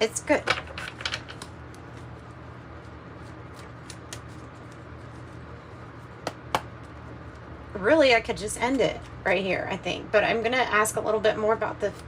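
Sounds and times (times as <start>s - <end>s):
steady low hum: 0.0s - 12.0s
cards clicking: 3.5s - 4.8s.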